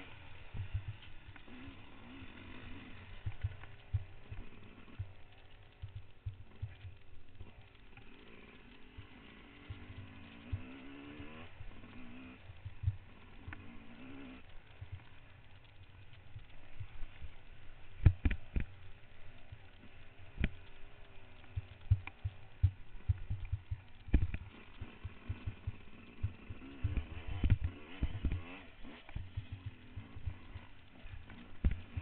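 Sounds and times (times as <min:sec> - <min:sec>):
motorcycle engine revving: 0:00.0 - 0:32.0
dull low thumps: 0:21.5 - 0:28.4.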